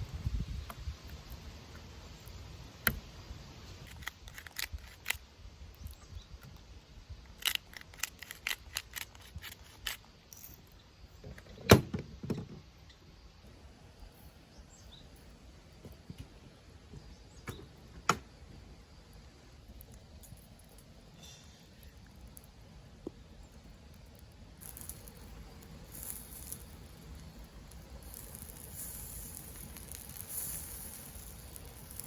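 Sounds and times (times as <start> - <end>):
faint outdoor background: 0.0 - 32.0
sharp clicks and knocks: 15.8 - 18.3.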